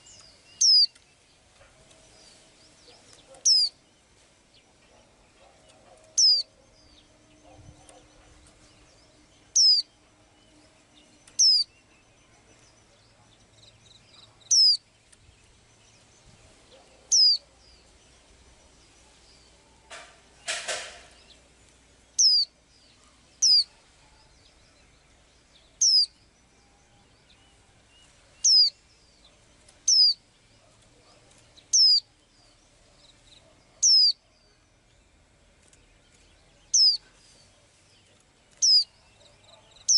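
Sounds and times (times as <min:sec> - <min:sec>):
bird high downward call: 0:03.4 - 0:03.8, 0:06.0 - 0:06.6, 0:14.5 - 0:14.8, 0:17.1 - 0:17.5, 0:22.2 - 0:22.5, 0:23.4 - 0:23.8, 0:25.8 - 0:26.2, 0:31.7 - 0:32.1, 0:33.8 - 0:34.2.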